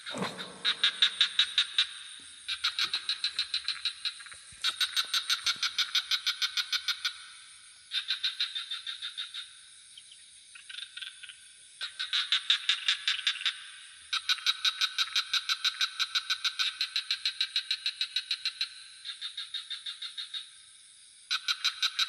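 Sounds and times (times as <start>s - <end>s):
high insect drone: 0.0s - 15.2s
frogs trilling: 0.0s - 20.5s, 21.3s - 22.0s.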